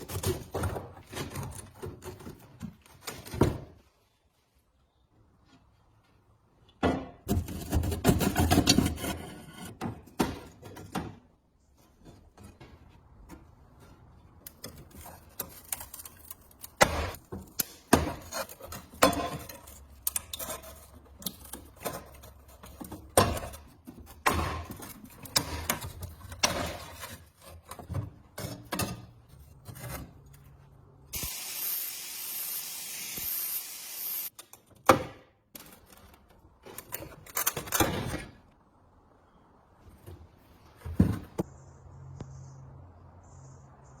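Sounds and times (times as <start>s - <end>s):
spraying hiss: 31.2s - 34.3s.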